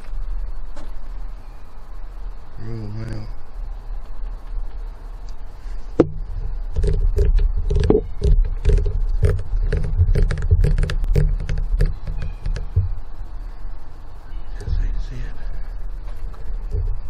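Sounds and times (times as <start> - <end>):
camera handling rumble: 5.9 - 13.0
footsteps crunching underfoot: 15.9 - 17.0.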